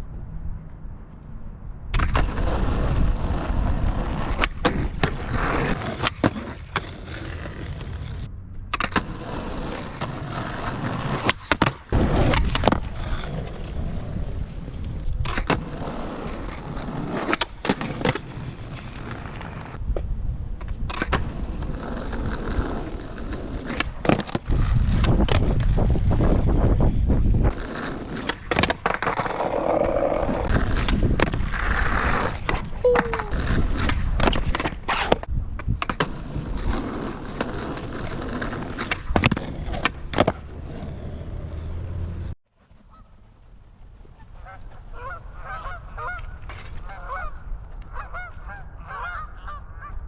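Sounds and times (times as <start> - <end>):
skateboard wheels rolling on pavement: 0.0 - 50.0
skateboard clacking on ground: 2.0 - 25.7, 27.5 - 41.7.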